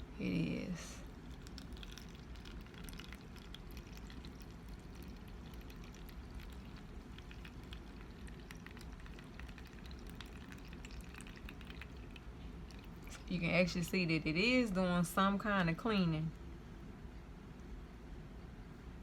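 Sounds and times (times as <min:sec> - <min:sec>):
water trickling and draining: 0:01.0 - 0:13.7
water drips and splashes: 0:01.1 - 0:13.4.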